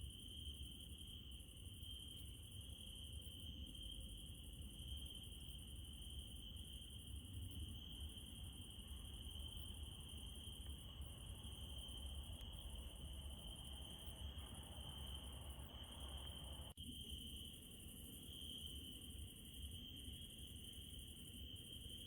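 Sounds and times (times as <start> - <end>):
crickets trilling: 0.1 - 22.0.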